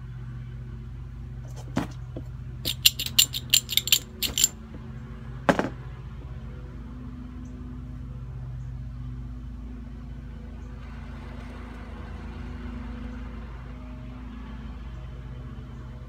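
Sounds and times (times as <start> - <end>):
metal tools clicking and clinking: 2.7 - 4.6.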